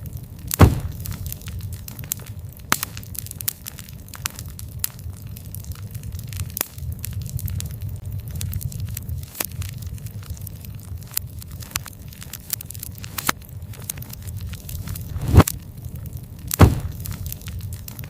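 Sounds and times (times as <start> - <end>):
campfire crackling and popping: 0.0 - 18.0
low rumble of flames: 0.0 - 18.0.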